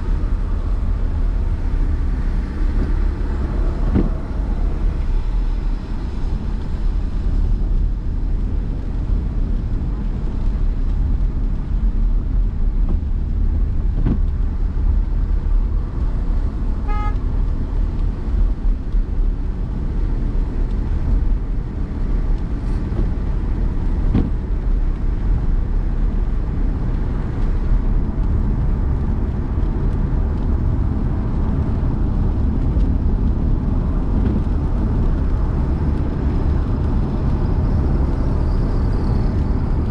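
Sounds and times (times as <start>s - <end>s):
car engine and road noise rumble: 0.0s - 39.9s
car horn toot: 16.8s - 17.2s.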